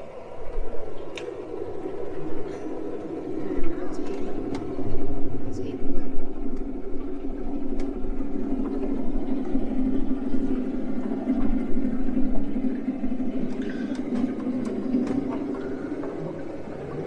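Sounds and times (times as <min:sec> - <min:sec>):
boat motor droning: 0:00.0 - 0:17.0.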